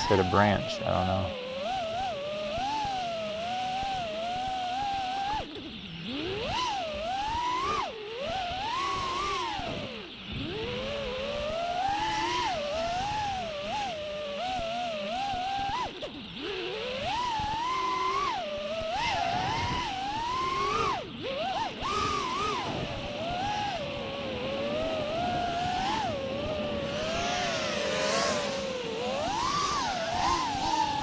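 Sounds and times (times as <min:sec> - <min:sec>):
drone motors whining: 0:16.0 - 0:31.0.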